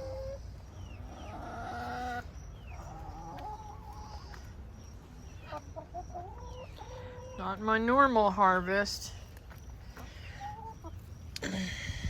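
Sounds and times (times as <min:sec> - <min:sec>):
chickens clucking: 0:00.0 - 0:08.1, 0:09.3 - 0:11.4.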